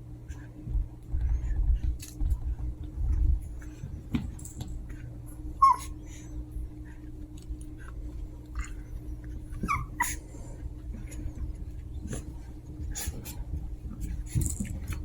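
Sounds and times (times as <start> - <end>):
small clicks and scuffles: 0.3 - 5.1
puppies yipping and whimpering: 5.6 - 6.1, 9.5 - 10.3.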